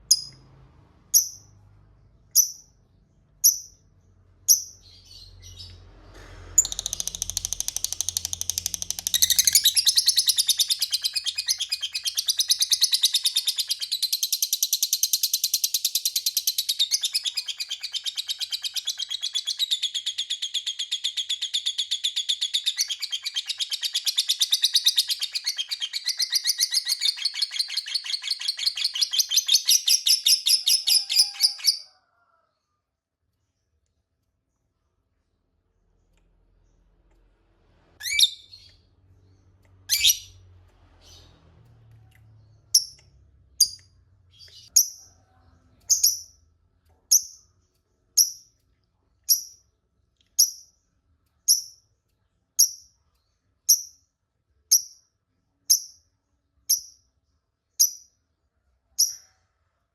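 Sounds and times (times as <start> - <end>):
lovebird chirping and trilling: 0.1 - 0.4, 1.1 - 1.5, 2.3 - 2.8, 3.4 - 3.9, 4.5 - 5.8, 6.6 - 31.9, 38.0 - 41.4, 42.4 - 43.0, 43.6 - 45.0, 45.9 - 46.4, 47.1 - 48.5, 49.3 - 49.6, 51.5 - 51.8.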